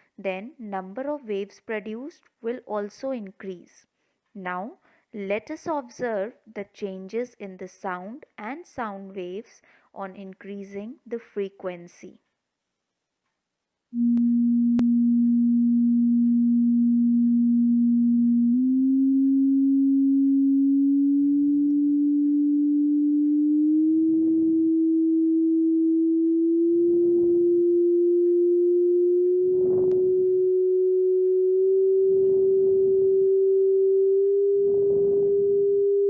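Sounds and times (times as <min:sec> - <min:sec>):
sine test tone rising in steps: 0:14.0 - 0:36.0.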